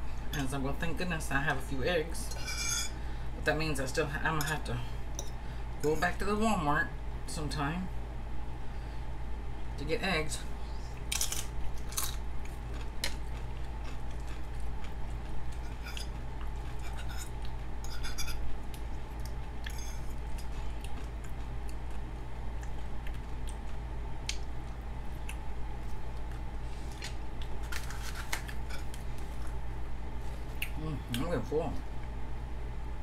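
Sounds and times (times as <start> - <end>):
low steady hum: 0.0 - 33.0
chewing with crunches: 11.0 - 29.6.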